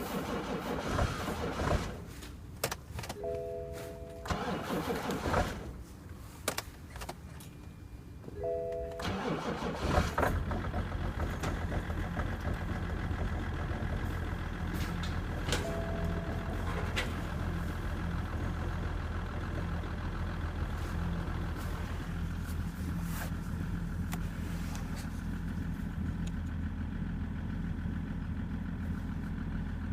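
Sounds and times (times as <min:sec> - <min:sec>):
two-note tone: 0:03.2 - 0:04.3, 0:08.4 - 0:09.0, 0:15.6 - 0:16.8
diesel engine idling: 0:08.4 - 0:29.9.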